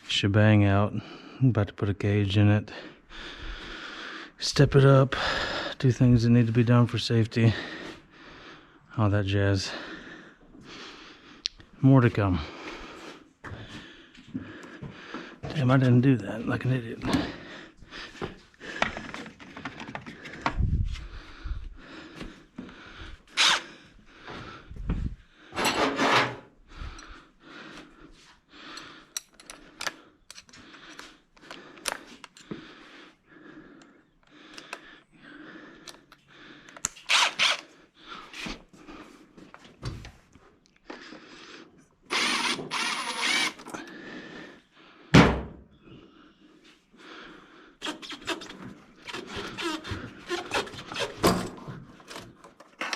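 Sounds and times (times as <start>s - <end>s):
rasping tool: 23.4s - 23.6s, 36.9s - 37.7s, 42.1s - 43.7s, 47.8s - 51.2s
tools knocking and clicking: 29.1s - 32.6s
loud thunk: 45.2s - 45.6s.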